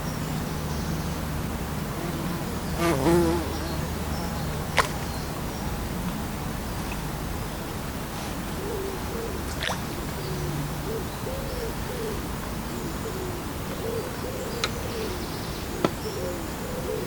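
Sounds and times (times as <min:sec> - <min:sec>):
flying insect buzzing: 0:02.0 - 0:03.6.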